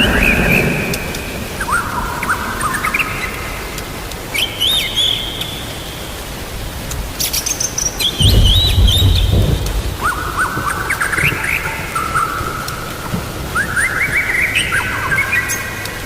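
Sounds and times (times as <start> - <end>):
low rumble of thunder: 0.0 - 2.9, 8.0 - 15.2
rain hissing: 0.0 - 16.0
songbird singing: 0.0 - 16.0.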